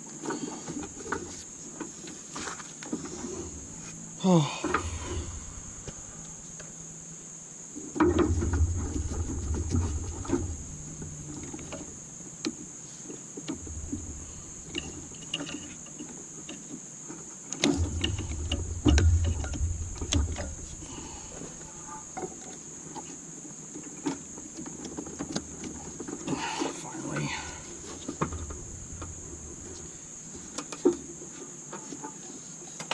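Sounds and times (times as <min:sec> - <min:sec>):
steady high hiss: 0:00.0 - 0:32.9
dull low bumping: 0:02.9 - 0:12.6, 0:13.5 - 0:15.9, 0:17.7 - 0:22.2, 0:27.2 - 0:30.7.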